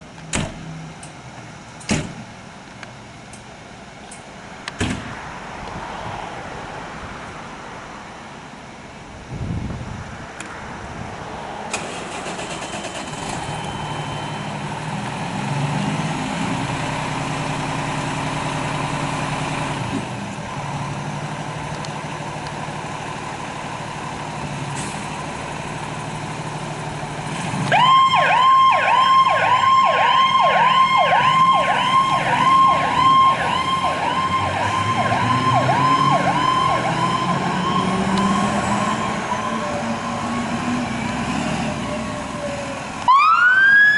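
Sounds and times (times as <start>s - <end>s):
heavy vehicle engine pulling away: 10.8s - 43.9s
electronic siren yelping: 27.7s - 40.0s, 43.1s - 43.9s.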